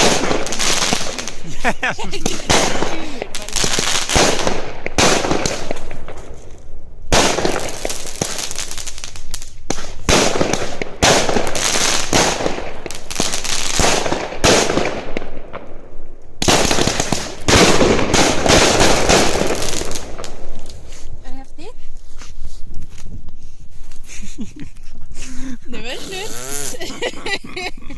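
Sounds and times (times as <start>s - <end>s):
fireworks bangs and crackles: 0.0s - 21.3s.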